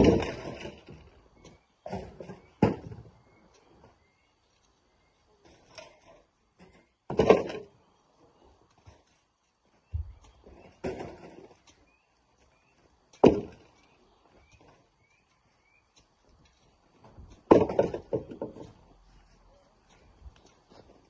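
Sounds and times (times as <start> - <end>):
heavy rocks thumping down: 0.0 - 1.0, 7.1 - 7.8, 13.2 - 13.7, 17.4 - 18.8.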